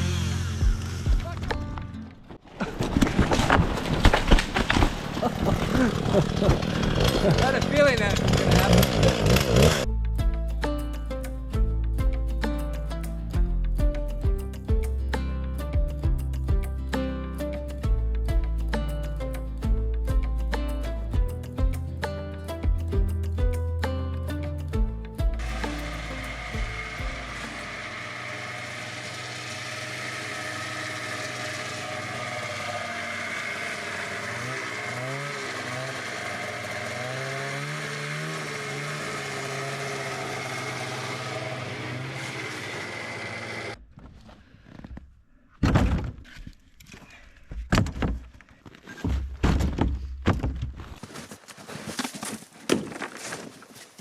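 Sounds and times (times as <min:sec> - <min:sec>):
chainsaw running: 0:00.0 - 0:01.8, 0:02.6 - 0:09.9, 0:25.4 - 0:43.8
knocks and thuds of wood: 0:01.0 - 0:07.3, 0:45.6 - 0:46.6, 0:47.5 - 0:51.2, 0:51.9 - 0:53.6.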